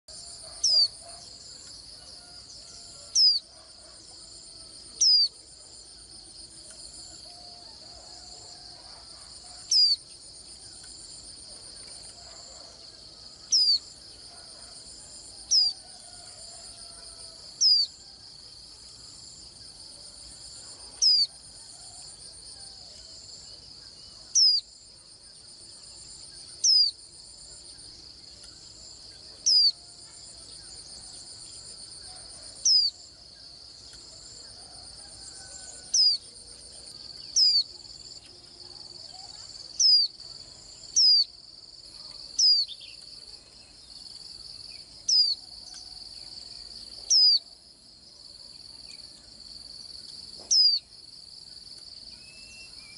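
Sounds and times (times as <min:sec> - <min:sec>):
bird chirping: 0:00.2 - 0:04.4, 0:05.0 - 0:05.4, 0:08.9 - 0:12.8, 0:13.4 - 0:14.8, 0:37.2 - 0:37.7
high cricket-like trill: 0:26.2 - 0:27.1.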